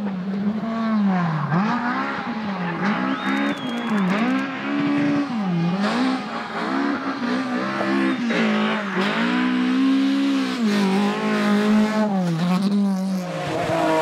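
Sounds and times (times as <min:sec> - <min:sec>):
rally car engine accelerating: 0:00.0 - 0:14.0.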